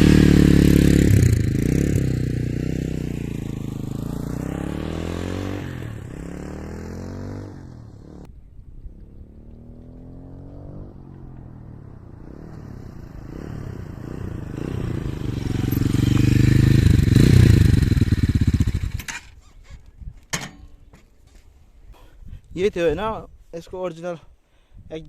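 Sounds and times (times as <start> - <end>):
motorcycle riding past: 0.0 - 19.2.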